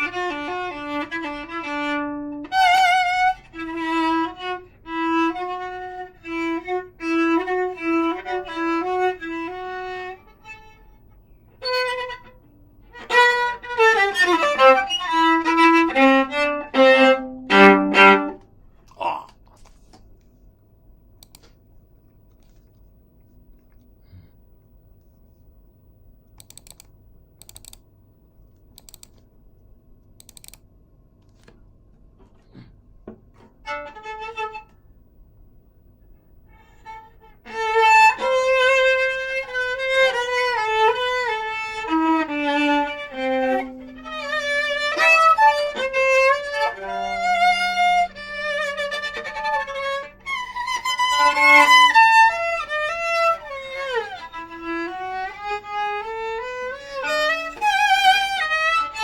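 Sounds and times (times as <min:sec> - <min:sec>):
bowed viola: 0:00.0 - 0:18.5, 0:33.4 - 0:34.8, 0:36.4 - 0:59.0.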